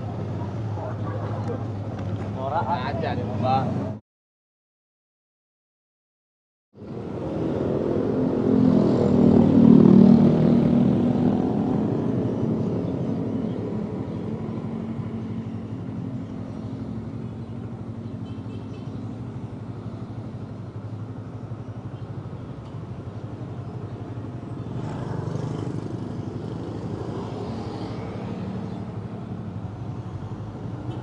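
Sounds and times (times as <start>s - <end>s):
street traffic: 0.0s - 4.0s, 6.8s - 31.0s.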